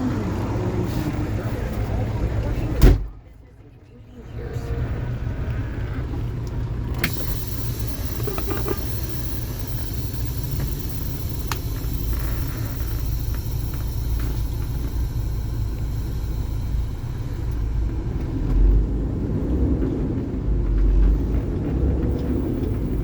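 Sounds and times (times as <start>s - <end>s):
truck diesel engine idling: 0.0s - 23.0s
sharp clicks: 6.9s - 15.2s.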